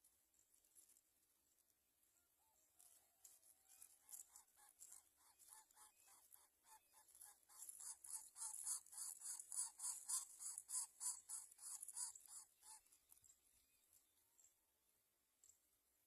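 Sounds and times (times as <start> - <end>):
nestling birds begging calls: 3.8 - 13.2.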